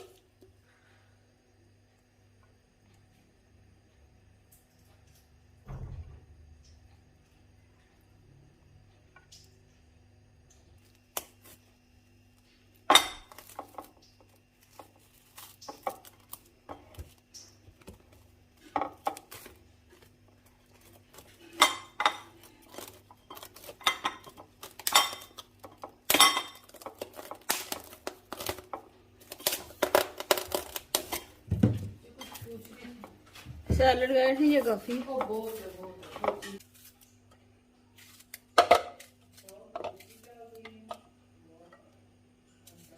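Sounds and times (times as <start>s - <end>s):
dishes and cutlery clinking: 21.2s - 28.6s, 30.3s - 36.6s.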